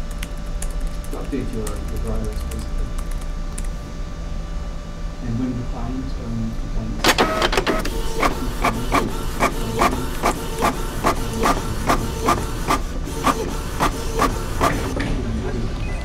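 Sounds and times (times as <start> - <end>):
low room hum: 0.0 - 16.0
office printer clacking: 7.0 - 15.3.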